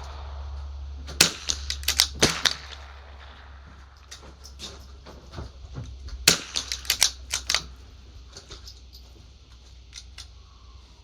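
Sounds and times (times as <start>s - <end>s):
rifle shots cracking: 0.0s - 5.0s, 6.2s - 7.8s.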